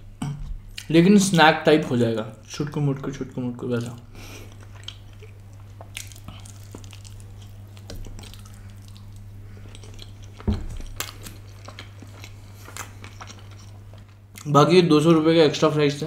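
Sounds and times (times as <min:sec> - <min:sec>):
low steady hum: 0:00.0 - 0:16.0
man chewing food: 0:03.7 - 0:14.5.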